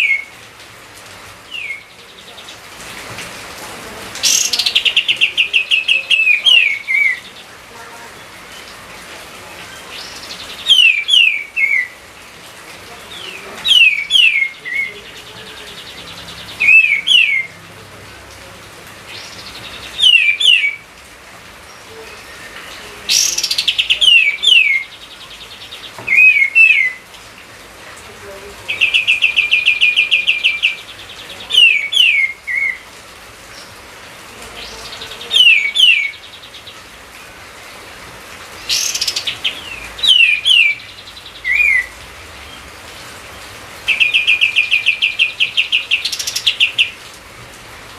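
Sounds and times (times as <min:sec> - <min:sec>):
songbird whistled phrases: 0:01.5 - 0:01.9, 0:10.0 - 0:12.0, 0:13.2 - 0:14.9, 0:16.6 - 0:17.5, 0:19.9 - 0:20.8, 0:26.1 - 0:27.0, 0:38.7 - 0:40.9, 0:41.5 - 0:41.9.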